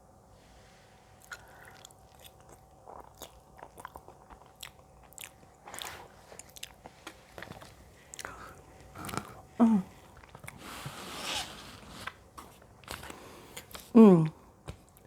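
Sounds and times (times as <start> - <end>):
chewing soft food: 1.2 - 10.9.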